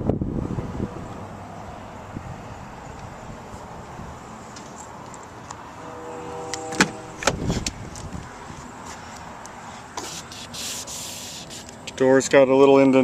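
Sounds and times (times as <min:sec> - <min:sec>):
car door thud: 0:06.5 - 0:08.1.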